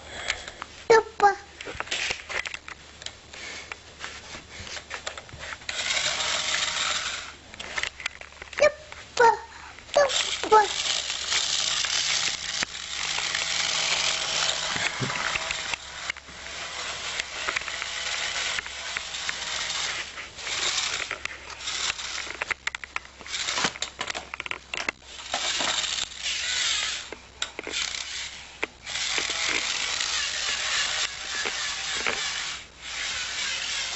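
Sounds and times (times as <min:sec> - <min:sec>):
plastic and metal parts clicking: 0:20.6 - 0:26.2.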